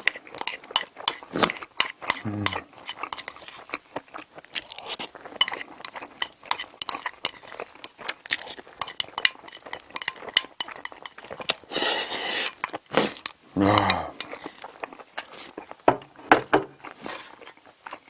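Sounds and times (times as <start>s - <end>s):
cutlery clinking against a dish: 4.9s - 11.6s.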